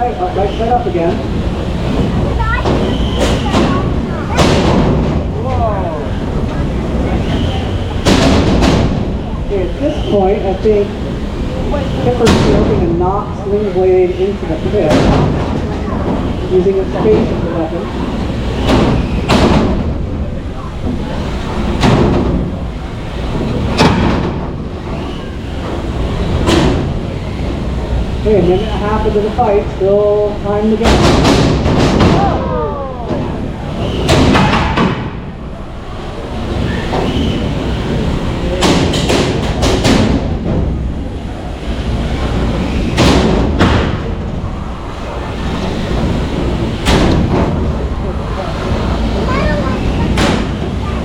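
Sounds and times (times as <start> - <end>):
steady background noise: 0.0 - 51.0
robots colliding with sharp hits: 2.0 - 5.3, 7.8 - 9.2, 23.4 - 24.6, 42.9 - 44.2, 46.0 - 47.8.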